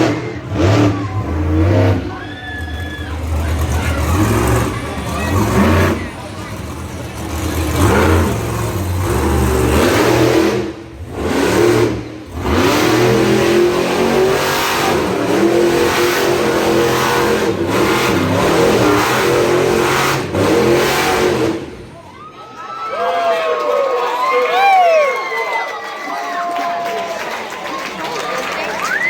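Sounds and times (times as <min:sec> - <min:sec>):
monster truck engine revving: 0:00.0 - 0:22.2.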